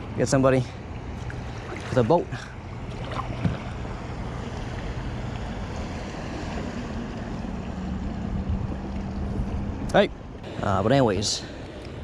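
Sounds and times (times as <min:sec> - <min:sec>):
water around a kayak: 0:00.0 - 0:12.0
wind rush on microphone: 0:05.0 - 0:10.8.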